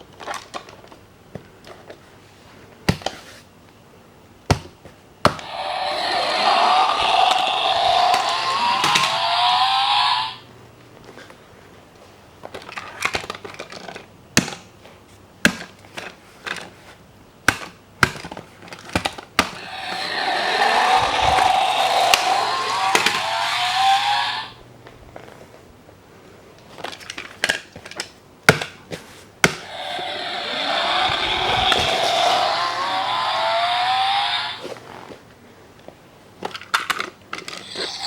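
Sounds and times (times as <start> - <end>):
toy car engine sound effect revving: 5.4 - 10.4, 19.6 - 24.6, 29.6 - 34.8, 37.6 - 38.0.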